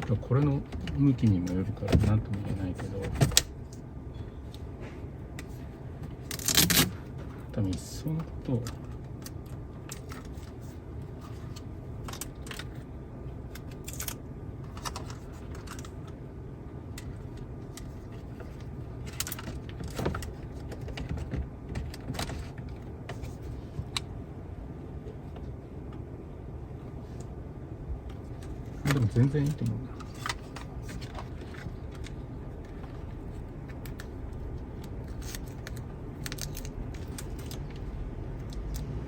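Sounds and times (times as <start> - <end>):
steady low hum: 0.0 - 39.0
parts clicking and rattling: 16.9 - 24.1, 28.1 - 38.9.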